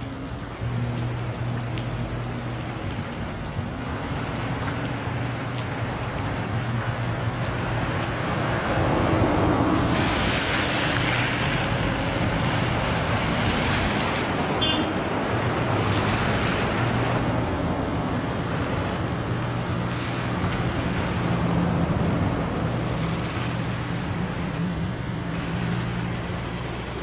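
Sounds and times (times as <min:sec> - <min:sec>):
wind and road noise: 0:00.0 - 0:27.0.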